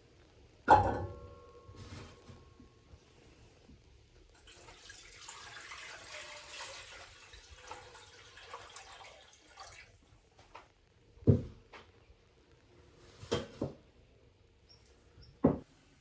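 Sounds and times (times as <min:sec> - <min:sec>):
tap water running into sink: 0:04.4 - 0:10.0.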